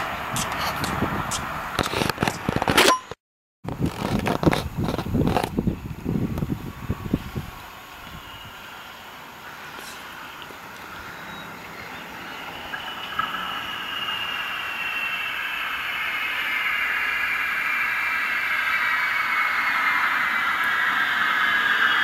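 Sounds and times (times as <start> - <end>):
light rail train approaching: 0.0 - 1.8, 6.2 - 22.0
high train whine: 0.0 - 2.5, 4.6 - 22.0.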